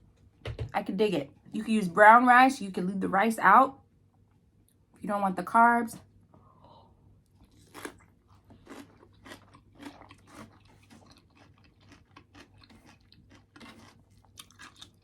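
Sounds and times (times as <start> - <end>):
person chewing crunchy food: 7.2 - 15.0.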